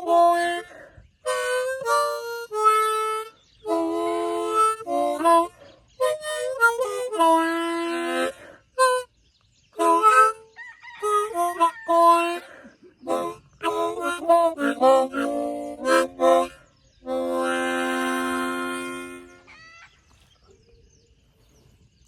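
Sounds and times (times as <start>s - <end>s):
harmonica playing: 0.0s - 9.2s, 9.8s - 19.5s.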